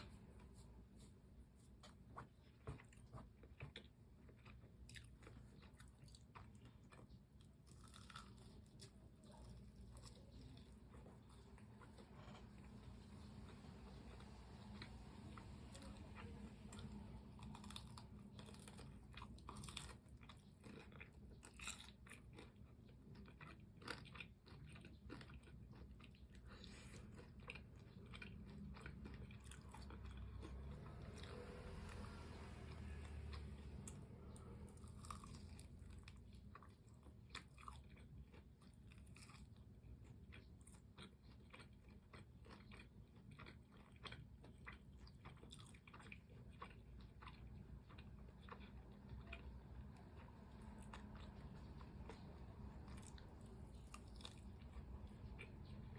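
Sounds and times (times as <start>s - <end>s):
crunching and chewing fried chicken: 0.0s - 55.9s.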